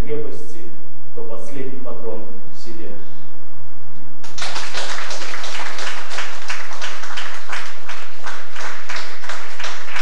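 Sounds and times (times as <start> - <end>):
hands clapping: 4.2 - 10.0.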